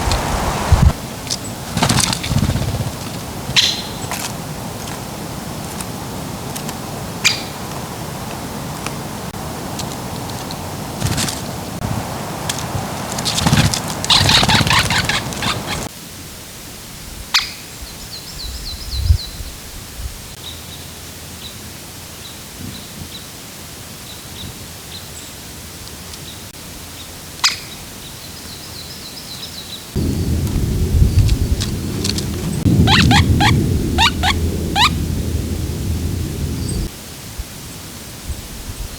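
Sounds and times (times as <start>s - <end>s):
loud rushing noise: 0.0s - 3.6s, 4.2s - 15.9s, 30.0s - 36.9s
bird trills: 3.5s - 4.2s, 13.1s - 15.9s, 30.0s - 35.3s
thin high bird chirps: 3.6s - 4.2s, 12.4s - 15.9s, 31.0s - 35.0s.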